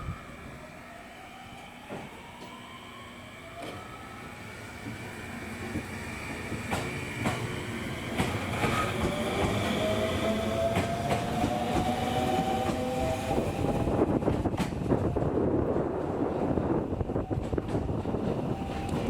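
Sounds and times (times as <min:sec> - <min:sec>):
train wheels clicking over rail joints: 0:05.6 - 0:13.1.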